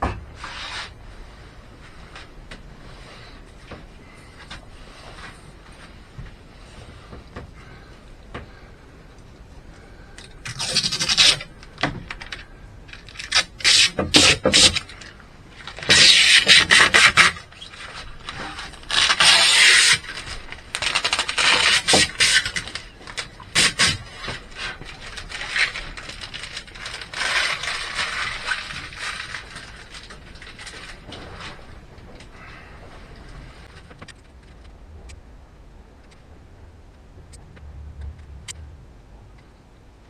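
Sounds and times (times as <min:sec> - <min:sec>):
scraping on a hard surface: 0:00.0 - 0:07.3.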